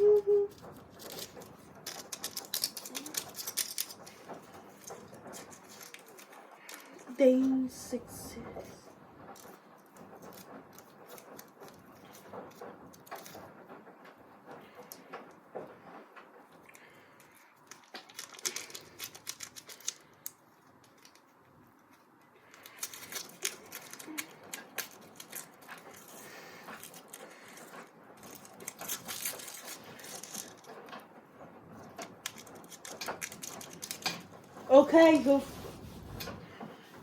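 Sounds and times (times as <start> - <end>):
small hard objects clicking: 0.0 - 7.2, 16.6 - 31.1, 31.8 - 35.3.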